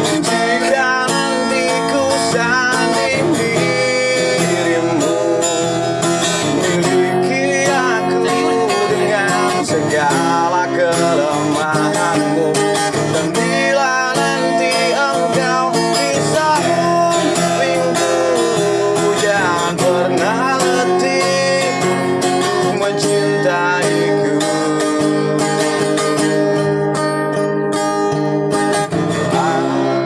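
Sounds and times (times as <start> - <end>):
acoustic guitar music: 0.0 - 30.0.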